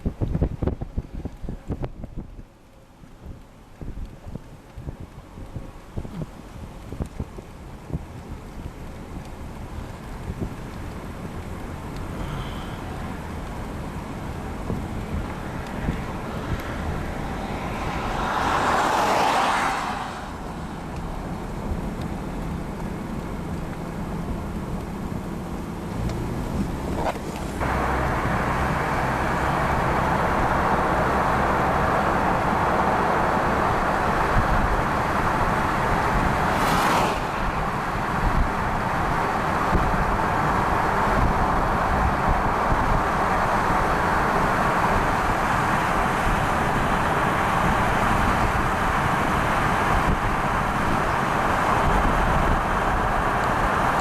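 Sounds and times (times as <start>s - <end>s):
low engine hum: 0.0s - 54.0s
road and wind noise: 0.0s - 54.0s
brief whoosh: 36.3s - 37.9s.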